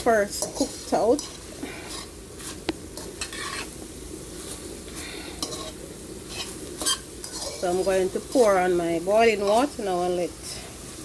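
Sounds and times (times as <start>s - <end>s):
beef sizzling in a pot: 0.0s - 11.0s
spoon scraping and clinking pot: 0.3s - 3.8s, 5.3s - 8.6s, 9.3s - 9.8s.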